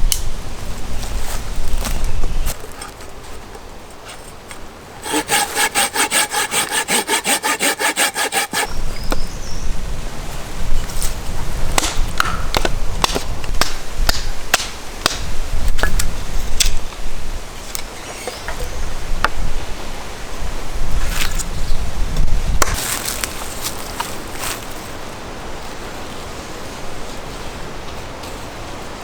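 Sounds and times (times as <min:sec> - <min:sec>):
hand saw cutting wood: 0:05.0 - 0:08.7.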